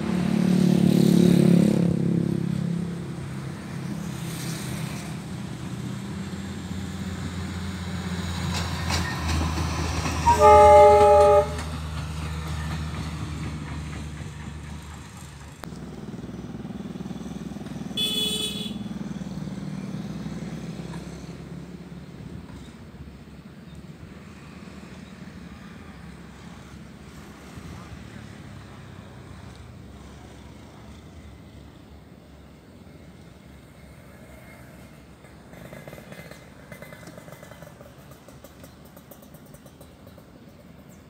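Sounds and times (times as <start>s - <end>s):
train rumbling on track: 0.0s - 41.0s
train horn blast: 10.2s - 11.9s, 18.0s - 18.9s.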